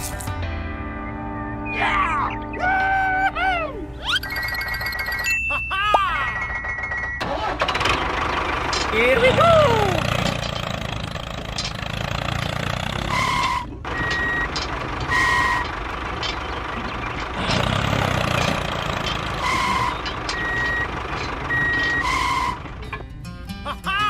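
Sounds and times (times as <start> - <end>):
truck engine running: 6.4 - 24.0
reversing alarm beeps: 13.2 - 15.7, 19.3 - 22.6.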